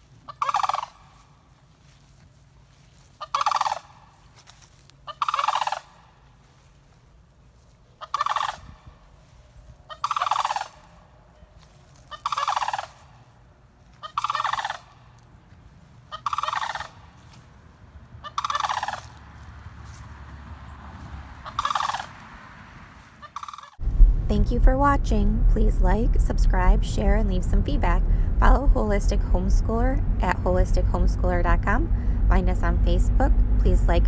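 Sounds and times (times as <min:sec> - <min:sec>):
crane calling: 0:00.0 - 0:01.4, 0:03.1 - 0:04.4, 0:05.0 - 0:06.2, 0:07.9 - 0:19.4, 0:21.4 - 0:22.2, 0:23.2 - 0:23.8.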